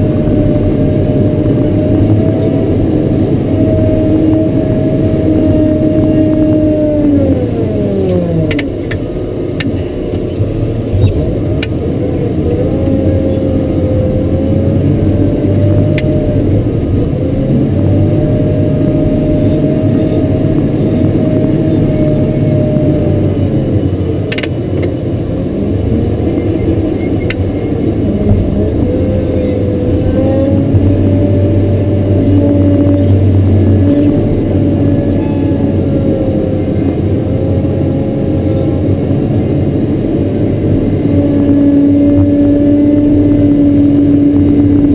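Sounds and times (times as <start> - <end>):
diesel engine revving: 0.0 - 44.9.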